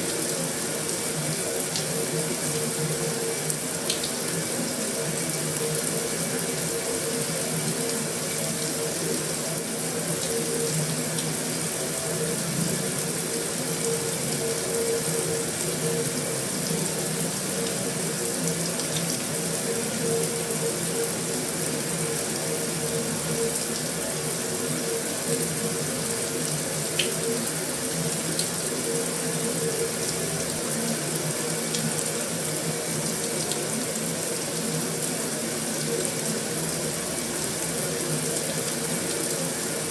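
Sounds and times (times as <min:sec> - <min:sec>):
heavy rain on a metal roof: 0:00.0 - 0:39.9.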